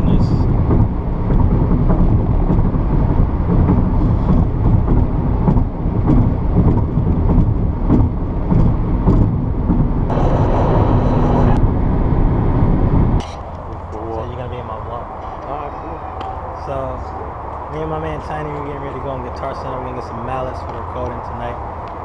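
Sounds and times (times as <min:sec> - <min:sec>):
steady hum: 0:00.0 - 0:15.4
moving vehicle rumble: 0:00.0 - 0:22.0.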